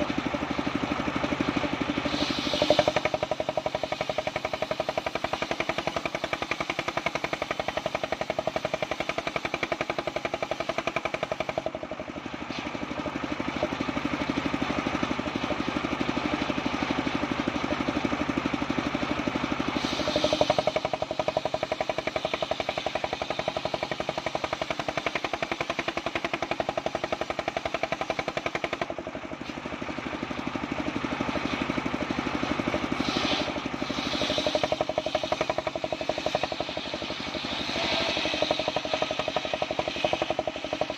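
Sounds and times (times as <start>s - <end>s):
circular saw cutting wood: 1.8s - 11.7s, 19.7s - 29.6s, 32.4s - 40.9s.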